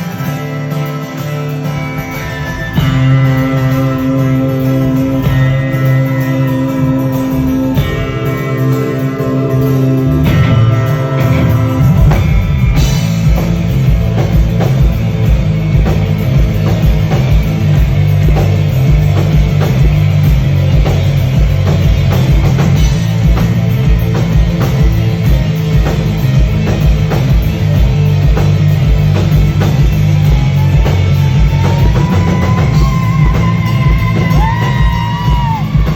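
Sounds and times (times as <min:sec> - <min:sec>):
bass guitar: 0:00.0 - 0:35.9
drum kit: 0:00.0 - 0:35.9
electric guitar: 0:00.0 - 0:35.9.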